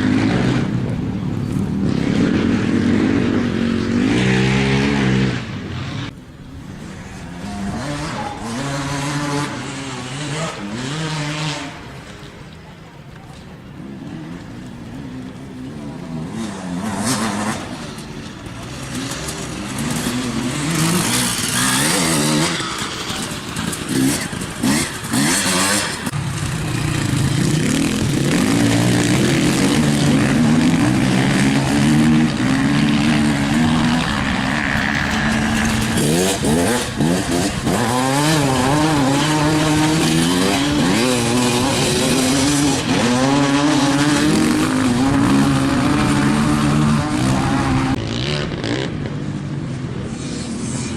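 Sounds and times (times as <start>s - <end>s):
off-road vehicle engine revving: 0.0s - 6.2s, 6.8s - 12.2s, 13.8s - 49.3s.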